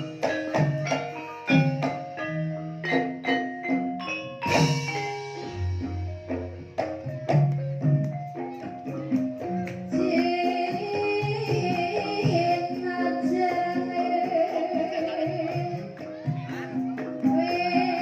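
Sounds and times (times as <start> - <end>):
gamelan metallophones playing: 0.0 - 18.0
person singing: 8.8 - 18.0.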